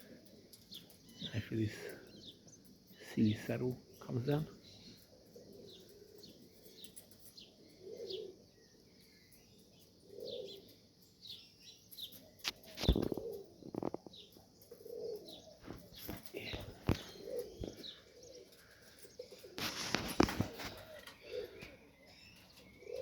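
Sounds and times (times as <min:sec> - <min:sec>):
pigeons cooing: 0:00.0 - 0:23.0
wing flaps: 0:12.5 - 0:14.0, 0:15.6 - 0:18.0, 0:19.4 - 0:21.8.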